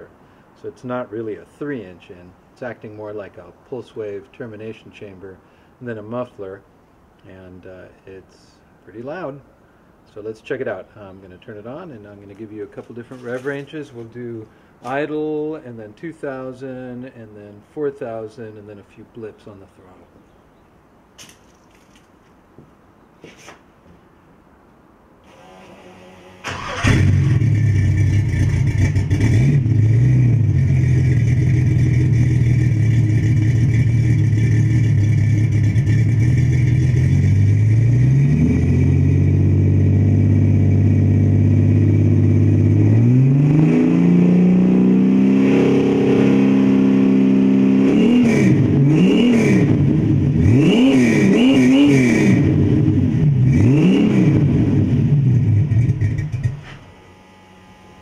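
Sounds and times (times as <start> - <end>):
car engine revving: 26.4 - 56.6.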